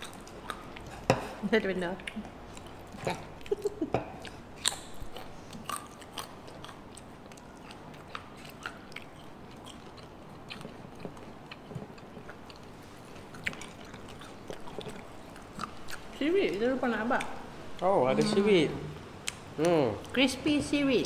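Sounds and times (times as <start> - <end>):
crunchy chewing: 2.0 - 16.2.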